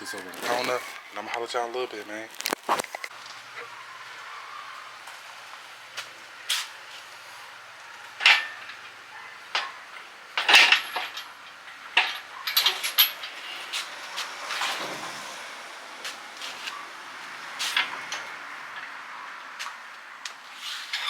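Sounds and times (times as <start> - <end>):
metal objects clinking and clanking: 10.4 - 13.8.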